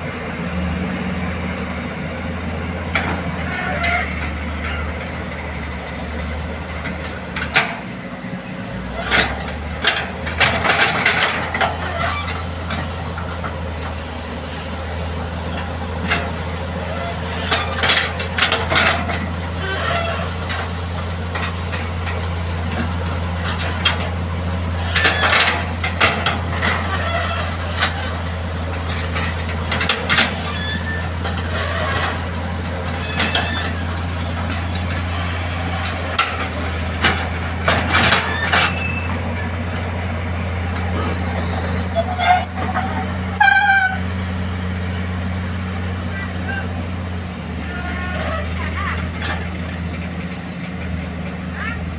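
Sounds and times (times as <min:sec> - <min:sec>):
excavator diesel engine drone: 0:00.0 - 0:51.9
metal clanks and scrapes: 0:02.9 - 0:05.8, 0:06.6 - 0:14.1, 0:15.4 - 0:39.9, 0:40.6 - 0:44.1.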